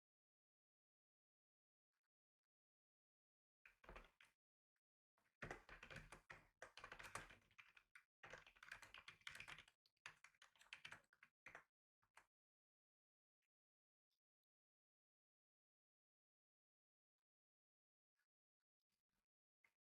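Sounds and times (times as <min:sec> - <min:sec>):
computer keyboard typing: 0:05.4 - 0:11.1.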